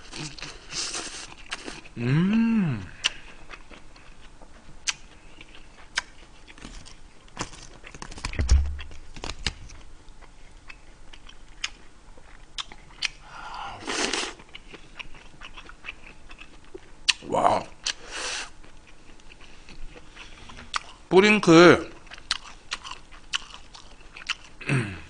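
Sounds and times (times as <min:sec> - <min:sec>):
chewing and crunching food: 0:00.0 - 0:21.1, 0:21.8 - 0:24.8
low thump: 0:08.4 - 0:09.1.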